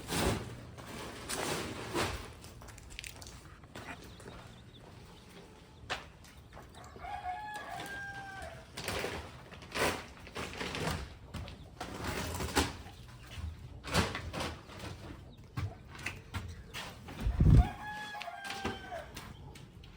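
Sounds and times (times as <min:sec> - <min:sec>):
hens clucking: 0:03.2 - 0:09.5, 0:10.6 - 0:19.9
rooster crowing: 0:06.8 - 0:08.7, 0:17.2 - 0:19.2.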